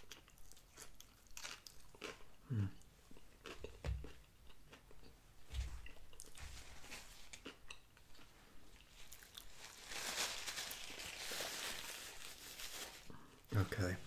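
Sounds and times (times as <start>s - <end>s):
chewing food: 0.0s - 6.4s, 7.2s - 9.6s
paper napkin rustle: 6.3s - 7.3s, 9.5s - 14.0s.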